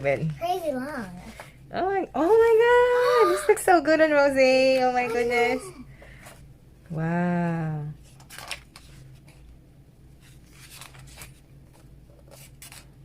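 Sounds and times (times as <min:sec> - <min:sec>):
pages rustling: 0:08.1 - 0:09.5, 0:10.2 - 0:13.0.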